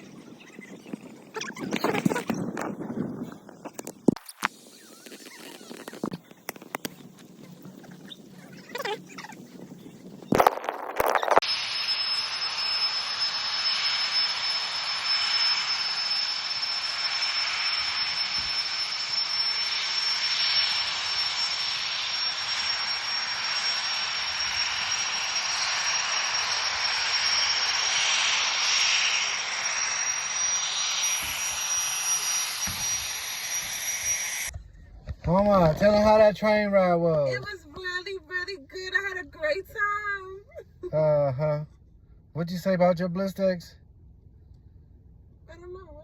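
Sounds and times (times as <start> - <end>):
high whistling tone: 10.2 - 34.6
loud rushing hiss: 11.4 - 34.5.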